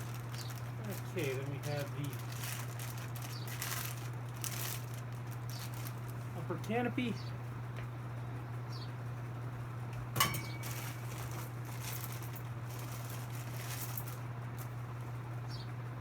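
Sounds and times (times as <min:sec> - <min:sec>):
handling clicks and rustling: 0:00.0 - 0:06.3, 0:10.2 - 0:15.1
steady low hum: 0:00.0 - 0:16.0.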